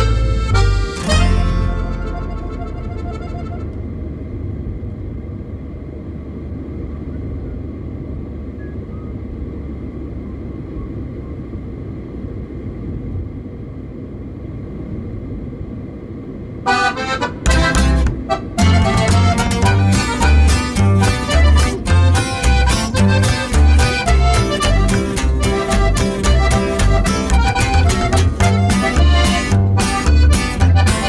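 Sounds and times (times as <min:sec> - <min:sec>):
music: 0:00.0 - 0:03.5, 0:16.7 - 0:31.0
road and engine rumble: 0:00.0 - 0:31.0.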